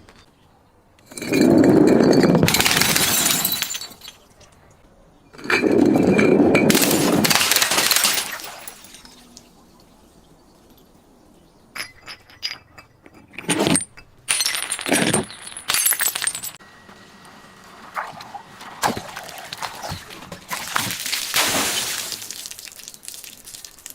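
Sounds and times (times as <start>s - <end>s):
glass crunching and clinking: 1.0s - 4.6s, 5.3s - 11.0s, 11.8s - 16.6s, 18.0s - 23.9s
glass shattering: 1.1s - 4.4s, 5.8s - 9.4s, 13.5s - 16.6s, 18.8s - 23.9s.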